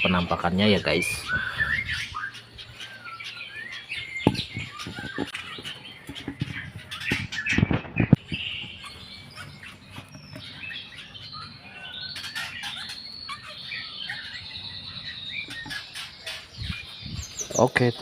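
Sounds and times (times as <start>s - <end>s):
bird chicks chirping: 0.0s - 18.0s
sharp knocks or rustles: 4.2s - 8.8s.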